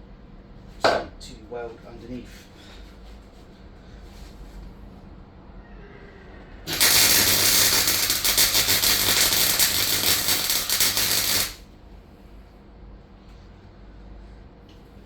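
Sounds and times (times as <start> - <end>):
welder arc crackling: 6.7 - 11.6.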